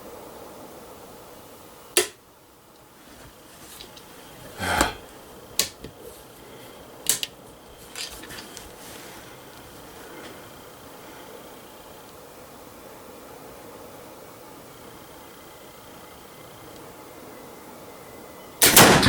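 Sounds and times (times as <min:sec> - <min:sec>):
rifle shot crack: 0:18.6 - 0:19.0.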